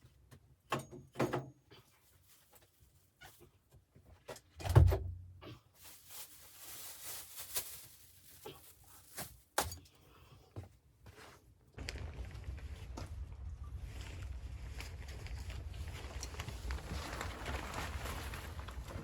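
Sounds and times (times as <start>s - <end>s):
steady low rumble: 11.8s - 17.4s.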